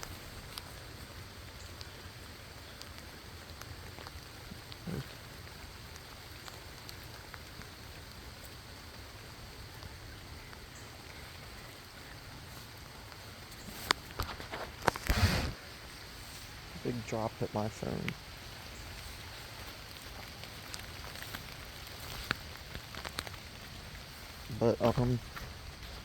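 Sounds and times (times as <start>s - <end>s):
light rain falling: 0.0s - 26.0s
drops ticking: 16.7s - 26.0s.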